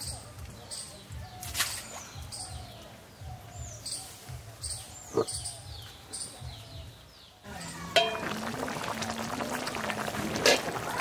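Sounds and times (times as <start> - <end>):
birds chirping: 0.0 - 8.3.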